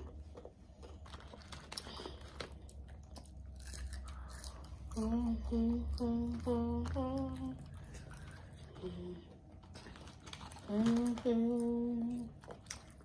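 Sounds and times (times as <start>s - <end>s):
chewing and mouth clicks: 0.0s - 5.1s, 5.9s - 13.0s
child singing held notes: 4.9s - 7.7s.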